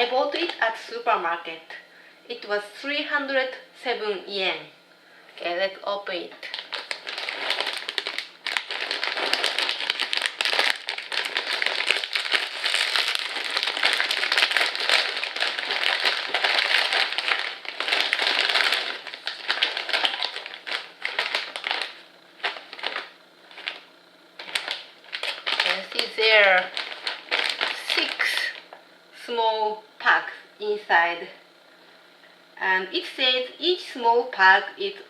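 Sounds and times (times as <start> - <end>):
snack bag crinkling: 6.5 - 28.7.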